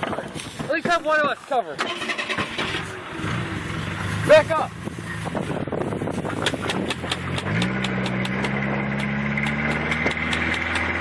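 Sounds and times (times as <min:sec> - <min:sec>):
truck engine revving: 0:01.8 - 0:11.0
sharp clicks and snaps: 0:06.4 - 0:11.0.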